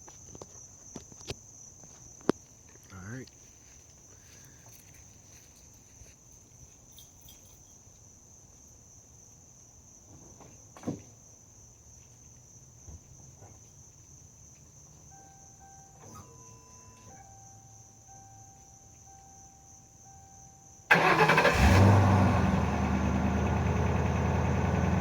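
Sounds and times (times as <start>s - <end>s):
crickets trilling: 0.0s - 22.1s
faint steady tone: 14.0s - 20.9s.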